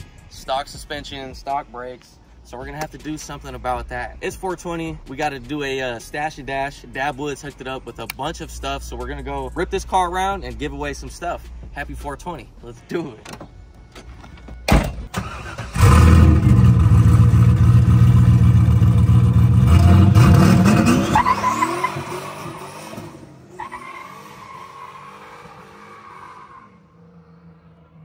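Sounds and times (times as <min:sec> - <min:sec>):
car engine revving: 0:15.2 - 0:28.0.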